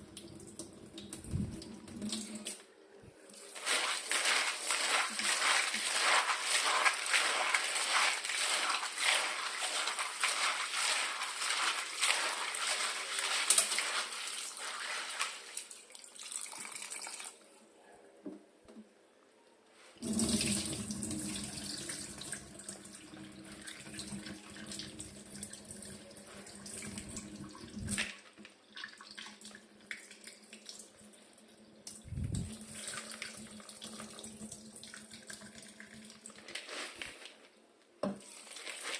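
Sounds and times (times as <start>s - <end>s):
tap water running into sink: 20.0s - 28.1s.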